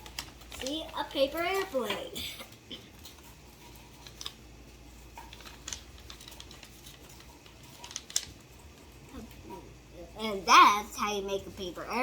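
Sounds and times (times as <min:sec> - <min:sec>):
paper clicks and rustles: 0:00.0 - 0:09.4.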